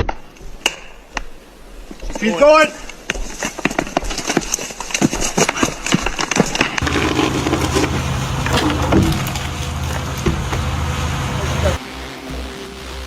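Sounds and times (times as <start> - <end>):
wood cracking and snapping: 3.1 - 10.8
low rumble: 6.8 - 11.8.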